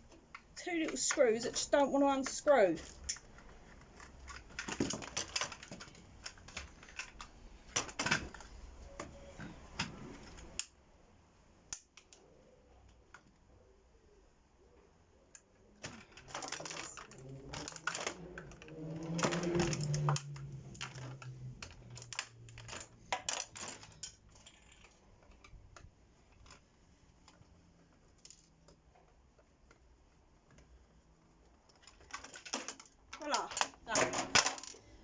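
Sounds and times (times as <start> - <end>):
metal parts clicking and clattering: 0.1 - 8.5, 15.8 - 25.6, 27.2 - 28.7, 31.6 - 35.0.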